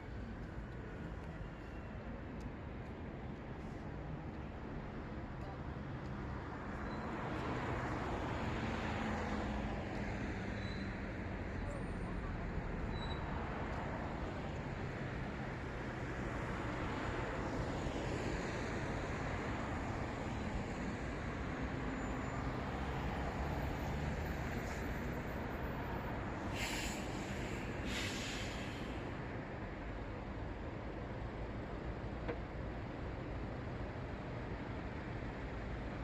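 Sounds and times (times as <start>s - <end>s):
passing cars: 6.3s - 31.2s
short sharp hisses: 26.5s - 29.0s.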